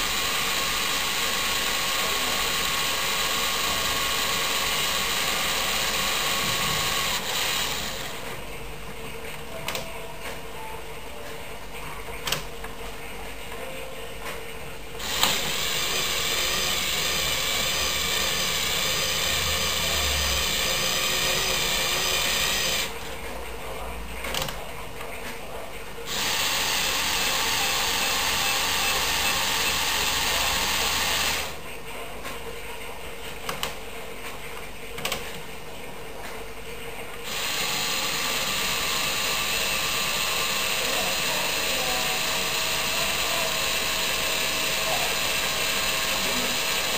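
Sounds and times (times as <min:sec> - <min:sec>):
electric motors whirring: 0:00.0 - 0:08.3, 0:15.0 - 0:23.1, 0:26.1 - 0:31.6, 0:37.2 - 0:46.9.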